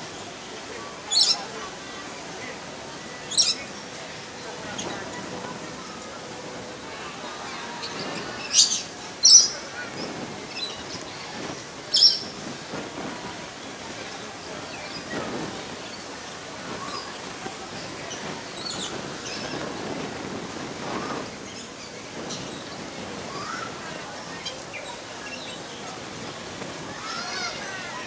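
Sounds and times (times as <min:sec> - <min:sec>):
lorikeet calling: 0:01.1 - 0:01.5, 0:03.2 - 0:03.7, 0:07.5 - 0:09.7, 0:11.9 - 0:12.3.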